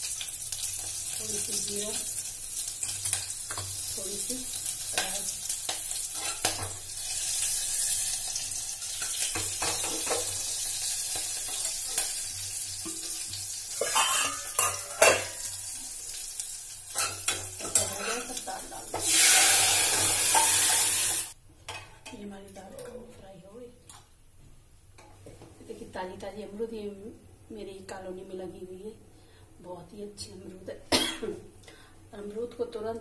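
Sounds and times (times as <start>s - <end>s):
spices sizzling in ghee: 0.0s - 21.4s.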